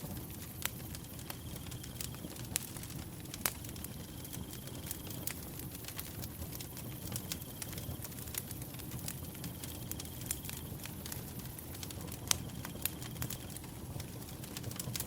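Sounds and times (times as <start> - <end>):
wood fire crackling and popping: 0.0 - 15.0
cricket trill: 0.8 - 2.6.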